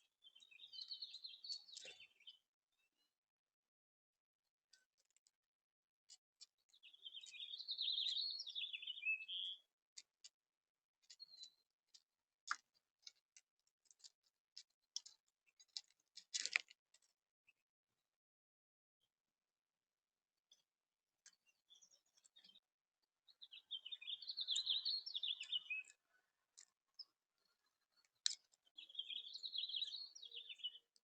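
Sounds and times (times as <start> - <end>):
songbird warbling: 6.8 - 9.6, 23.4 - 25.9.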